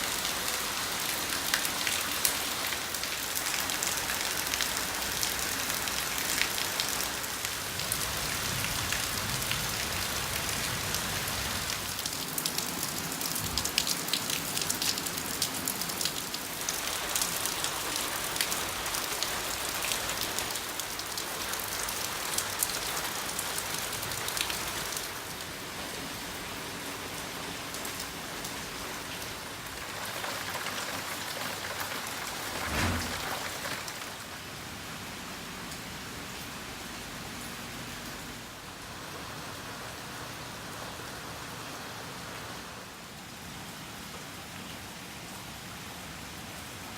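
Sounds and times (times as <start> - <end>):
rain patter: 0.0 - 46.9
low thump: 32.6 - 33.5.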